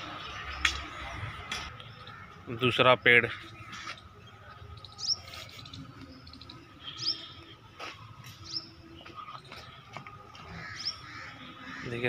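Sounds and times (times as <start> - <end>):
bird chirping: 3.5 - 7.5.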